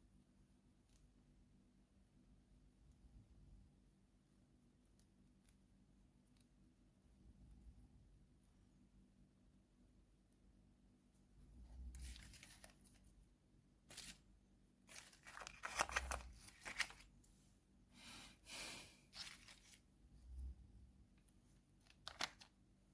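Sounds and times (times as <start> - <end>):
candy wrapper crinkling: 14.9 - 17.1, 21.9 - 22.5.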